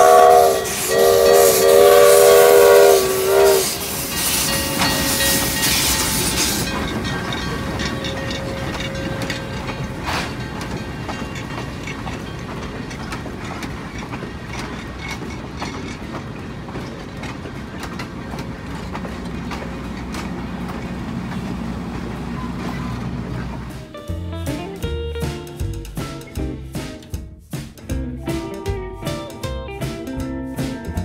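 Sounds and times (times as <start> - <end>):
train wheels rumbling on rails: 0.0 - 31.0
wheels clacking over rail joints: 0.0 - 31.0.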